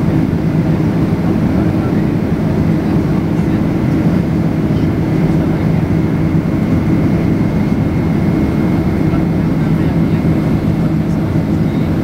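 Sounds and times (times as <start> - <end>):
jet engine and airflow noise: 0.0 - 12.0.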